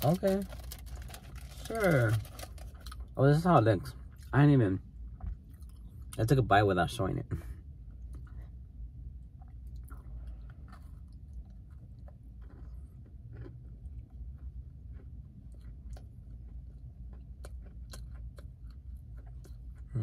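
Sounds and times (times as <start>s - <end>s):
steady low hum: 0.0s - 20.0s
person chewing crunchy food: 7.9s - 20.0s.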